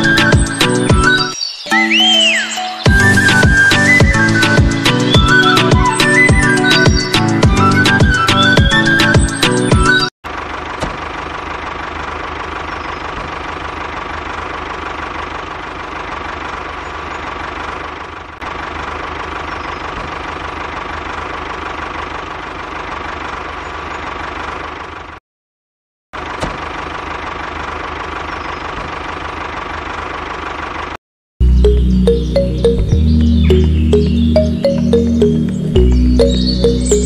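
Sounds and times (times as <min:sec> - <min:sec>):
small engine running: 0:09.3 - 0:25.2, 0:26.2 - 0:31.0.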